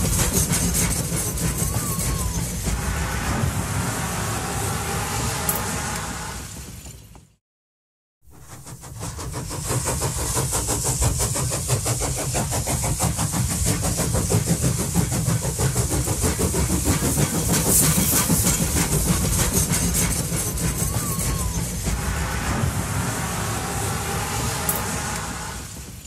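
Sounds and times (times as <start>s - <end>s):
train wheel clicks: 0.0s - 2.9s, 5.4s - 7.3s, 8.4s - 22.1s, 24.0s - 26.0s
train rumble and hiss: 0.0s - 7.4s, 8.3s - 26.0s.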